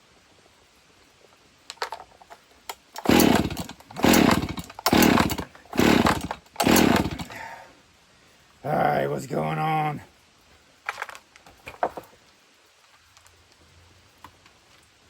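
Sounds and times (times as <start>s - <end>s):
chainsaw recoil starter pulls: 2.7s - 7.6s.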